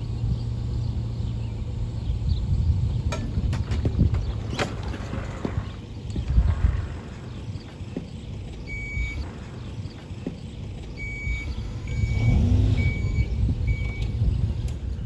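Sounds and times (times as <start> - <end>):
low engine rumble: 0.0 - 15.0
reversing alarm beeping: 8.6 - 9.4, 11.0 - 14.2.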